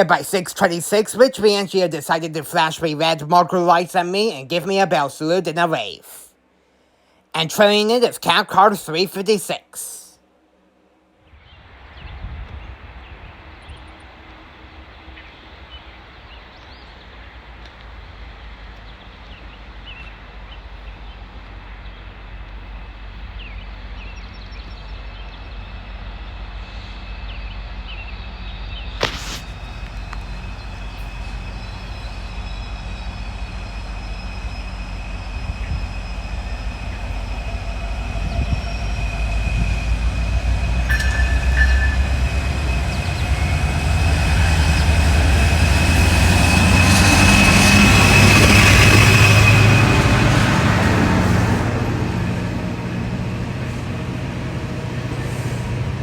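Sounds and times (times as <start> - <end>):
train rumbling on rails: 0.0 - 5.9, 11.2 - 56.0
high thin squeal: 29.0 - 49.9.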